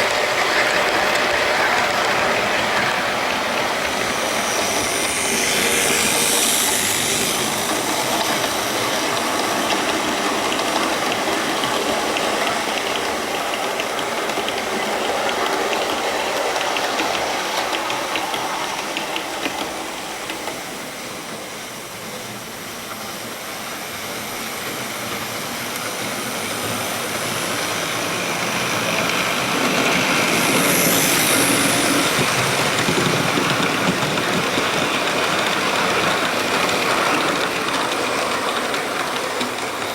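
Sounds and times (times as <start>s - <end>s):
wheels clicking over rail joints: 0.0s - 20.9s, 26.6s - 39.9s
model train motor whirring: 0.0s - 21.3s, 23.8s - 39.9s.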